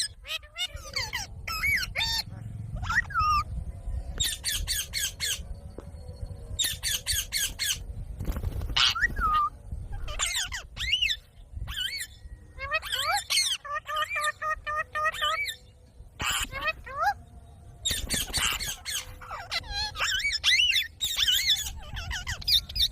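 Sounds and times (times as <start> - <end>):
parrot squawking: 0.0 - 3.5, 8.8 - 15.6, 16.2 - 17.2, 17.8 - 22.9.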